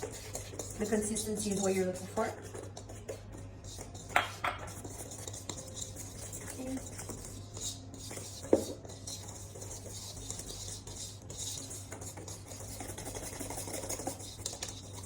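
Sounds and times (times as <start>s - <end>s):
batter being stirred in bowl: 0.0s - 15.0s
utensil knocking against bowl: 4.1s - 4.8s.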